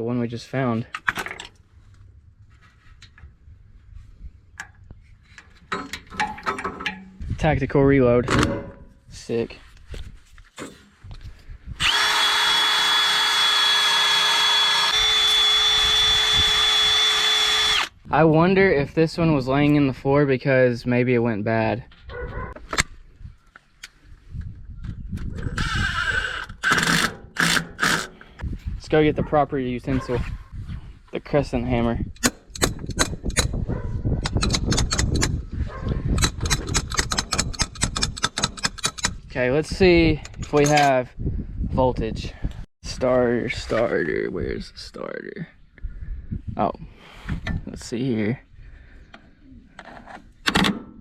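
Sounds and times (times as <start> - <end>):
power drill whining: 11.8 - 18.0, 25.5 - 28.0
metallic clicks of hand tools: 34.2 - 35.4, 36.2 - 39.2.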